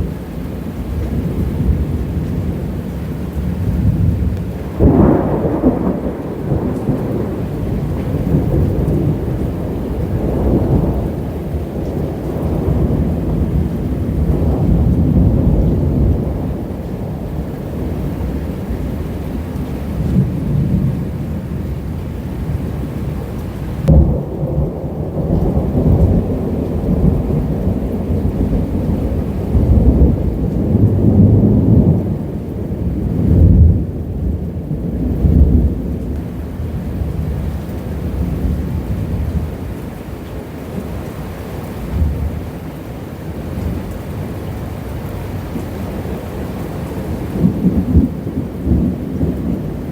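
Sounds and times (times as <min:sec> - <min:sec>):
rolling thunder: 0:00.0 - 0:40.0, 0:45.4 - 0:49.9
rain: 0:00.0 - 0:49.9.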